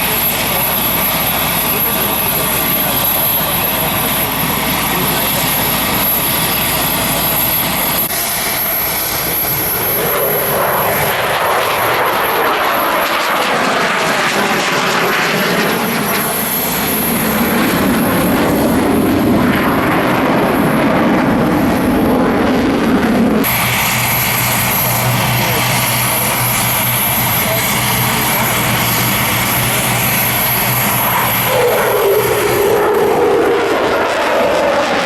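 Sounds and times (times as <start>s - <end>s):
helicopter engine and rotor: 0.0s - 35.0s.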